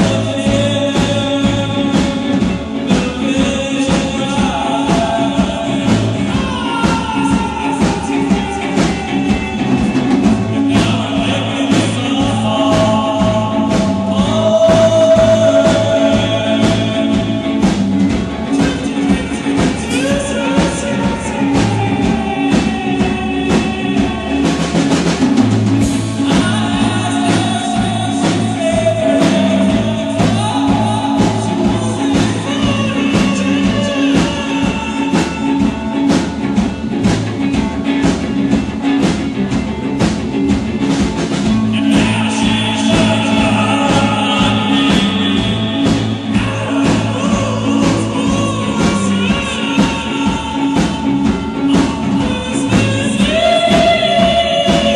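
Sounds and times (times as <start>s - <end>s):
person singing: 0.0s - 54.9s
pulsing bass line: 0.0s - 54.9s
rock band playing live: 0.0s - 54.9s.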